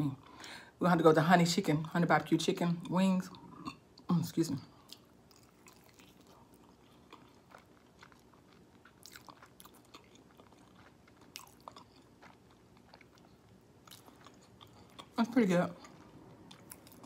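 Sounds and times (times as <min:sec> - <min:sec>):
chewing crunches: 0:04.8 - 0:17.0.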